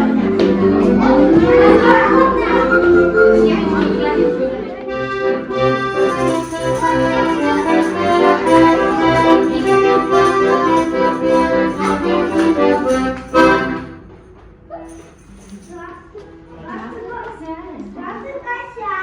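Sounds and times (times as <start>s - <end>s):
accordion playing folk tune: 0.0s - 14.2s.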